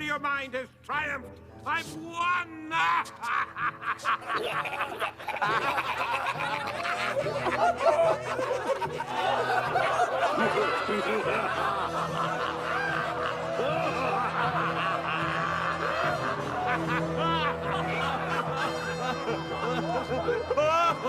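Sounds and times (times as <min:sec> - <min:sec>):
sustained background music: 0:00.0 - 0:21.0
cartoon voices laughing: 0:02.8 - 0:21.0.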